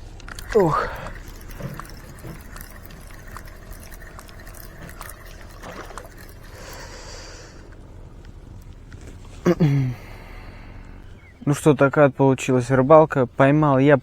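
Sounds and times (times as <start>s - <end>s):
river water lapping and trickling: 0.0s - 11.4s.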